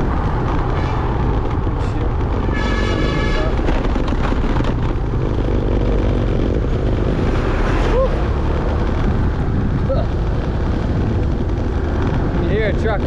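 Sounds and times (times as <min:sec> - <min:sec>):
motorbike running: 0:00.0 - 0:13.0
wind buffeting microphone: 0:00.0 - 0:13.0
horn sounding: 0:02.4 - 0:03.8.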